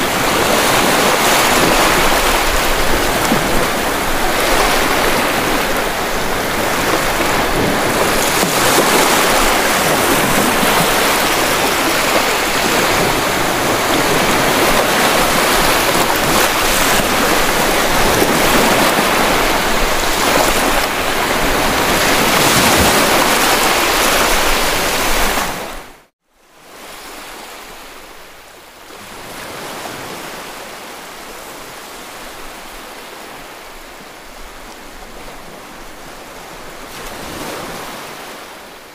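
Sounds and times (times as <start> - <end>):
wind on microphone: 0.0 - 26.0
sea waves: 0.0 - 38.9.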